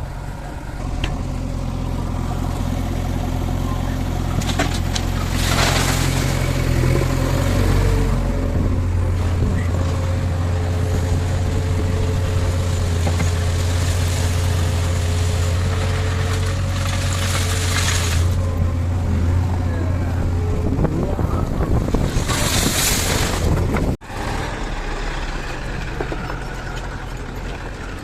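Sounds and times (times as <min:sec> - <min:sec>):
heavy diesel engine running: 0:00.0 - 0:28.0.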